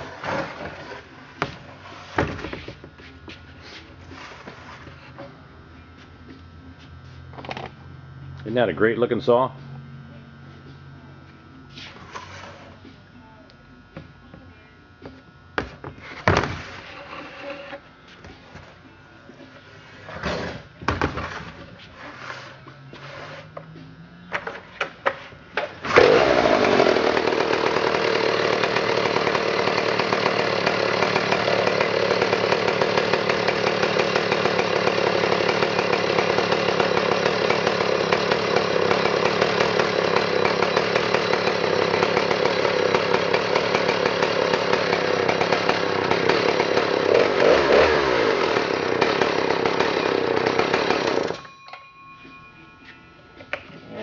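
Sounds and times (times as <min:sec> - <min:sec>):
chainsaw engine running steadily: 0:25.8 - 0:51.5
chainsaw engine knocking: 0:25.9 - 0:51.4.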